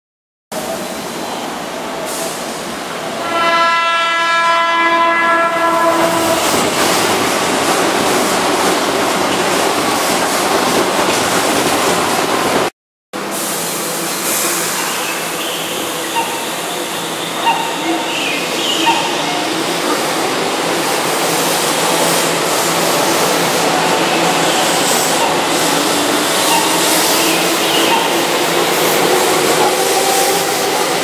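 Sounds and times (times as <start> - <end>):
train wheel and rail noise: 0.5 - 31.0
train horn: 3.2 - 6.5.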